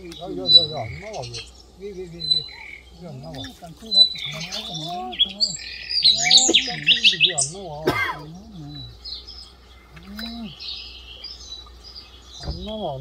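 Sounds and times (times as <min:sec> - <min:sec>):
small birds chirping: 0:00.0 - 0:13.0
low wavering voice: 0:08.3 - 0:09.0, 0:09.9 - 0:10.6.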